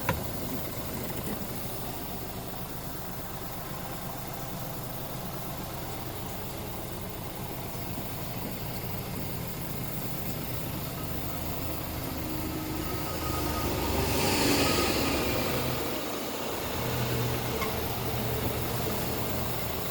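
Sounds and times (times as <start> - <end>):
diesel truck engine idling: 0.0 - 19.9
air hissing: 12.9 - 18.2.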